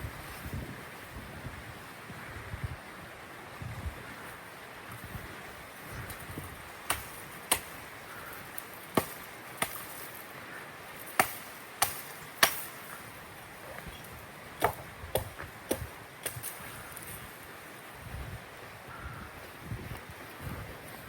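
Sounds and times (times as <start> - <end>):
wood chopping strikes: 6.8 - 7.8, 8.5 - 10.2, 11.0 - 13.0, 14.6 - 16.6.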